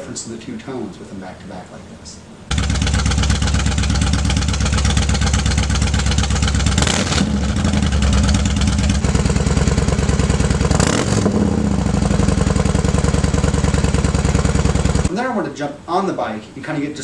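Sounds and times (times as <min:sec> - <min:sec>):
motorcycle engine idling: 0:02.5 - 0:15.1.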